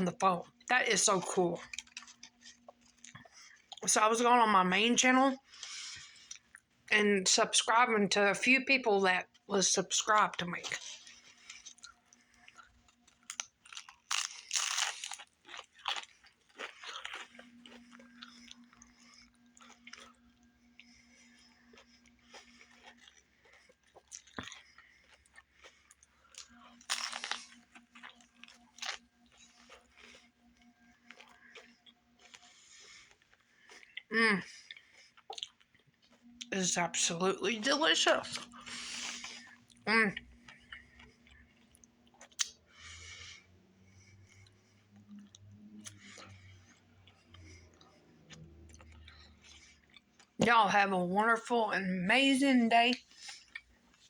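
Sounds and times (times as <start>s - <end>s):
person chewing and crunching: 0.5s - 3.9s, 5.4s - 6.7s, 9.2s - 36.5s, 38.1s - 50.5s, 52.9s - 54.0s.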